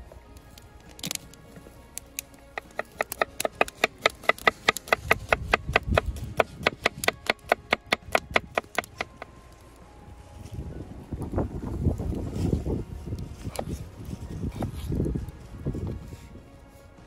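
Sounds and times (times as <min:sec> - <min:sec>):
knife chopping on wooden board: 0:02.6 - 0:09.2.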